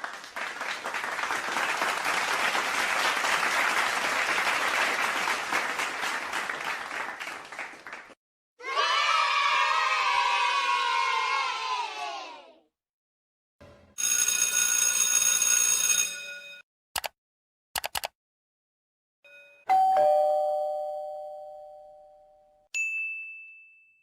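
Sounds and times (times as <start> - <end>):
short clicks: 17.0 - 17.2, 17.8 - 18.2
brief high ding: 19.3 - 24.0
two-note doorbell chime: 19.3 - 24.0.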